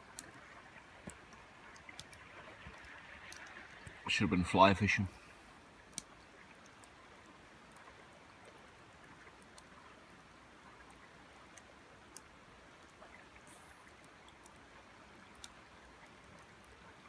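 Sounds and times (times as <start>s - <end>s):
river water hissing: 0.0s - 8.4s, 12.0s - 17.0s
campfire crackling and popping: 0.0s - 17.0s.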